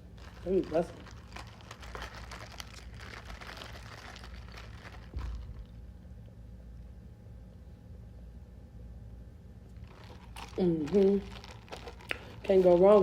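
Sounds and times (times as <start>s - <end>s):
paper packaging crinkling: 0.0s - 5.8s, 9.8s - 13.0s.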